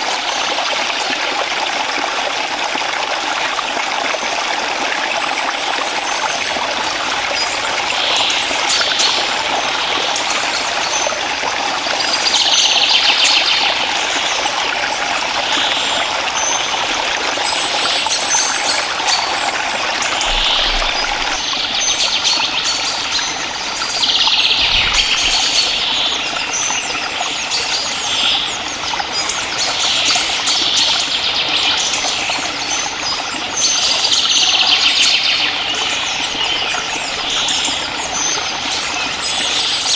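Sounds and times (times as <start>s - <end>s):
forest stream trickling: 0.0s - 39.9s
bird chirps: 17.5s - 26.9s.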